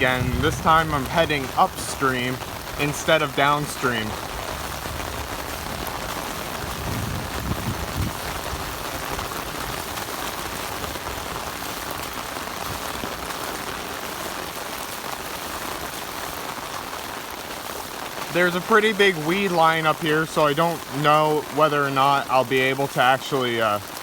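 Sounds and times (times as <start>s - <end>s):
low thunder rumble: 0.0s - 10.0s
heavy rain falling: 0.0s - 24.0s.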